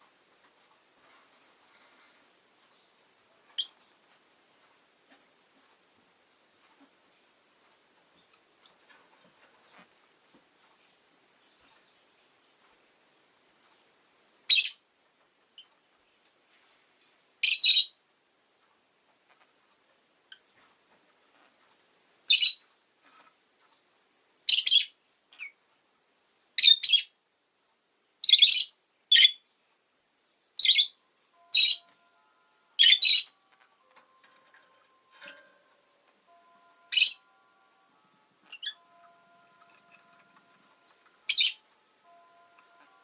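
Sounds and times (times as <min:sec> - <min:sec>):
lovebird shrill chirps: 0:14.5 - 0:14.8, 0:17.4 - 0:18.0, 0:22.3 - 0:22.6, 0:24.5 - 0:25.5, 0:28.2 - 0:29.4, 0:30.6 - 0:31.9, 0:32.8 - 0:33.4, 0:36.8 - 0:37.4, 0:38.4 - 0:39.0, 0:41.2 - 0:42.2.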